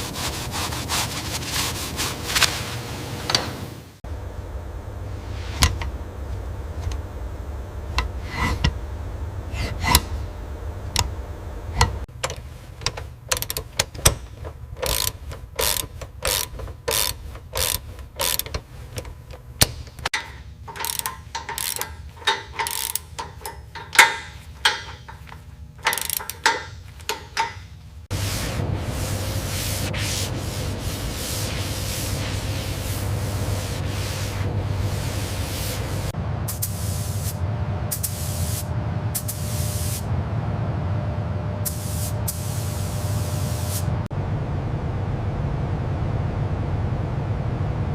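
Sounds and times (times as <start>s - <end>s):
low steady hum: 0.0s - 47.9s
tools clicking on metal parts: 11.8s - 27.8s.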